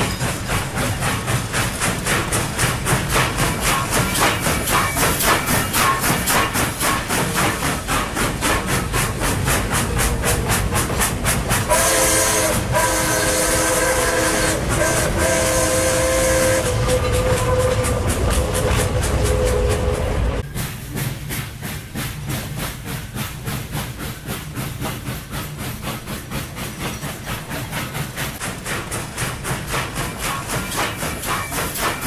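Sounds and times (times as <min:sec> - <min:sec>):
train wheels clattering: 0:00.0 - 0:32.0
train whistle blasts: 0:11.7 - 0:20.4.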